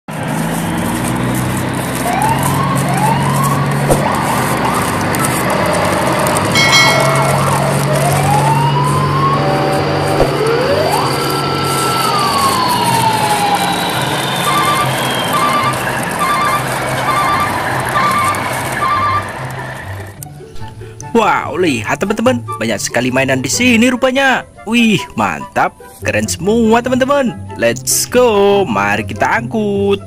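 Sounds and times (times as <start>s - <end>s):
siren whoops and wail: 2.0s - 20.0s
multi-tone blast: 6.5s - 19.7s.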